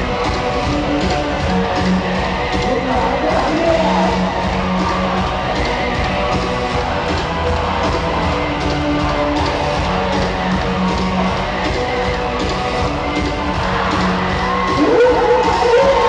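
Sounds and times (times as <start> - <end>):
distorted electric guitars: 0.0 - 16.0
drums: 0.0 - 16.0.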